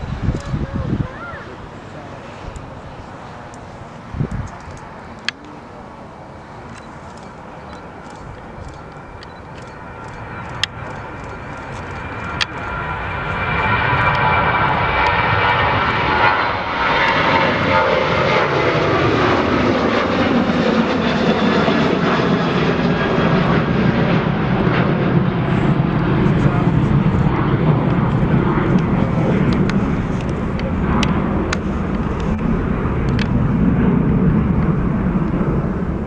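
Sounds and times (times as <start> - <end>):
jet airliner engines: 0.0 - 36.0
sharp clicks: 4.2 - 5.5, 6.7 - 12.6.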